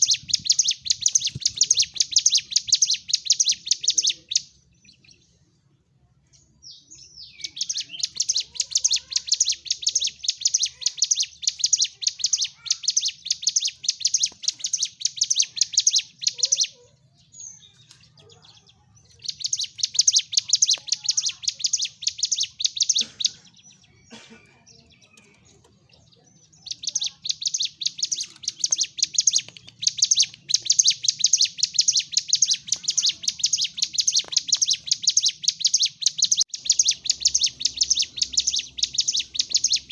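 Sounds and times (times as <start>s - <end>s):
bird singing rapid high chirps: 0.0s - 5.5s, 6.3s - 39.9s.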